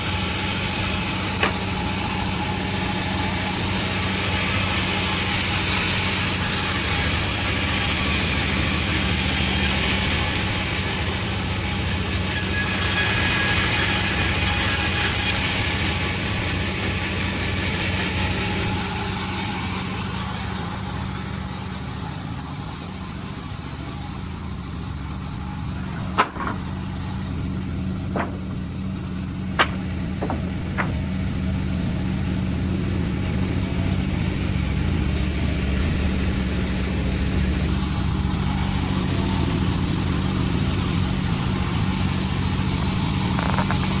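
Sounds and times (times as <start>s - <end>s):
sawmill machine hum: 0.0s - 44.0s
sharp knocks: 1.3s - 1.7s, 26.0s - 26.8s, 28.1s - 28.6s, 29.5s - 31.3s, 43.2s - 44.0s.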